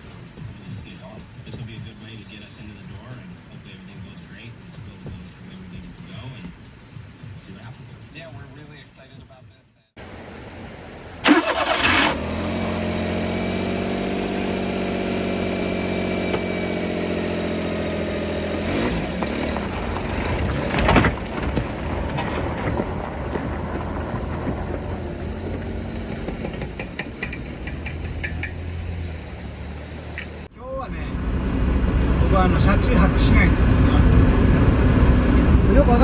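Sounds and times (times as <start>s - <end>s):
small truck engine starting and idling: 10.0s - 36.0s.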